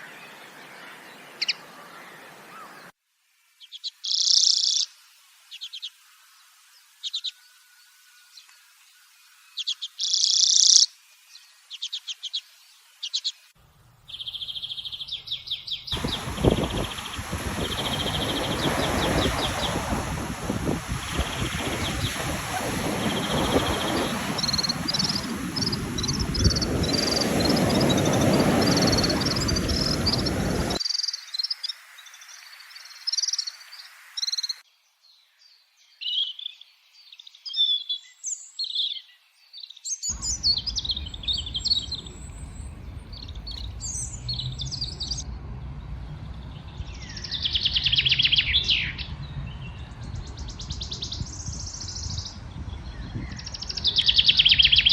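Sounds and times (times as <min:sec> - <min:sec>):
songbirds chirping and trilling: 0:00.0 - 0:03.0, 0:03.6 - 0:54.9
steady noisy rush: 0:16.0 - 0:30.8, 0:40.2 - 0:50.4.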